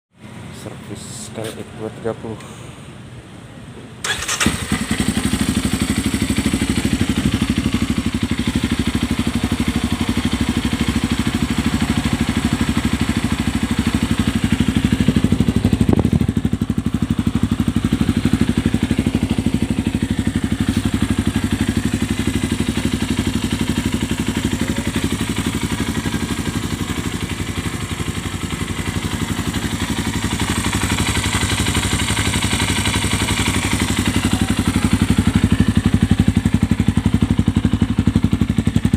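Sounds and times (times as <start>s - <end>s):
motorcycle engine idling: 4.0s - 38.9s.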